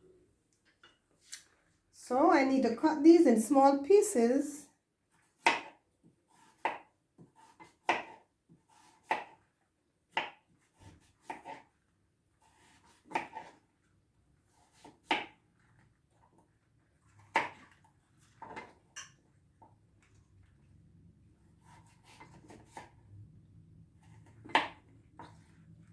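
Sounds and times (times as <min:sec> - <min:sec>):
knife chopping pumpkin: 0:05.2 - 0:09.4, 0:10.1 - 0:11.7, 0:12.4 - 0:13.6, 0:14.6 - 0:15.4, 0:17.3 - 0:17.7, 0:21.6 - 0:23.0, 0:24.1 - 0:25.5.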